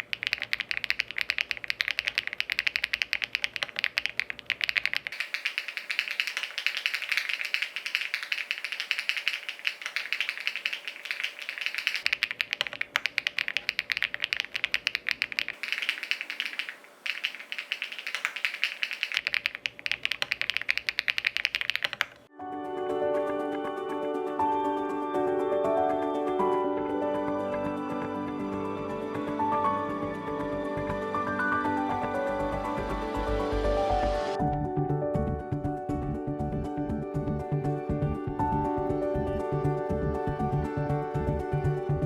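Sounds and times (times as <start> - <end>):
mechanical keyboard typing: 0.0 - 22.3.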